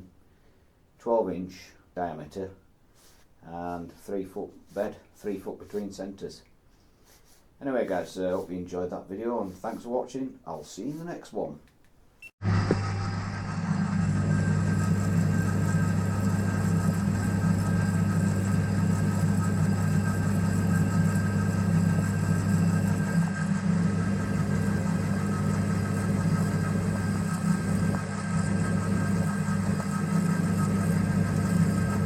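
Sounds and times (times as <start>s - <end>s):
lathe motor humming: 12.4s - 32.0s.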